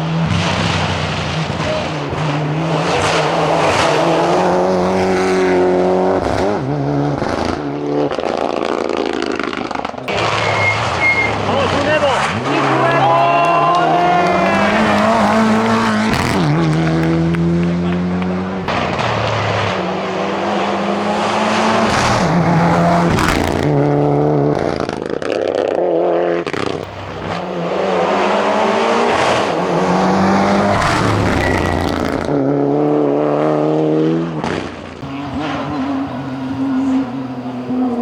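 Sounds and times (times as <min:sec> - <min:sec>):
car engine racing: 0:00.0 - 0:38.0.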